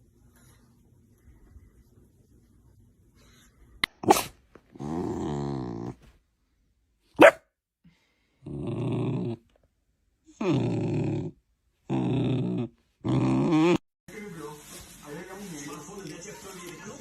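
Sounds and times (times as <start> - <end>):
dog barking: 4.0 - 4.4, 7.2 - 7.5
dog growling: 4.7 - 6.0, 8.4 - 9.5, 10.2 - 13.8.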